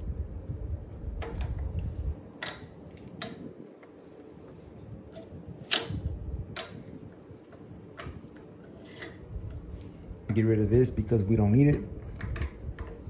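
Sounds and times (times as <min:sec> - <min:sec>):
low handling rumble: 0:00.0 - 0:13.0
tools clicking and knocking: 0:02.4 - 0:03.5, 0:05.1 - 0:06.0, 0:12.2 - 0:13.0.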